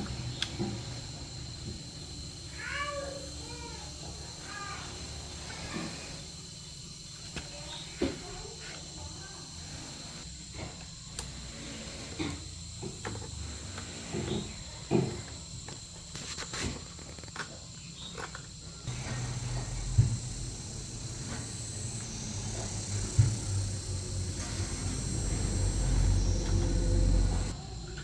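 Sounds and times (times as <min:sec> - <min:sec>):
insect chirring: 0:00.0 - 0:10.3, 0:16.9 - 0:27.6
low hum: 0:18.9 - 0:27.6.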